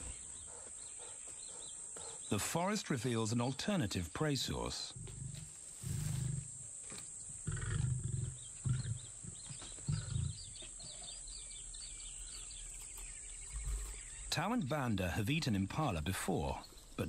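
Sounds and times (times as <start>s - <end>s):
faint birds chirping: 0.0s - 17.0s
lion grunting: 4.8s - 6.6s, 7.4s - 11.2s.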